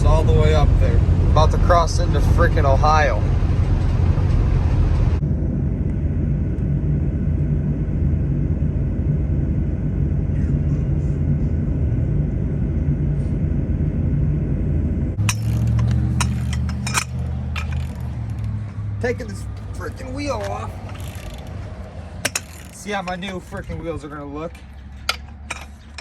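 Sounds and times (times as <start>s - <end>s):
diesel pickup driving rumble: 0.0s - 26.0s
low hum: 0.0s - 26.0s
sharp clicks and clatter: 15.2s - 26.0s.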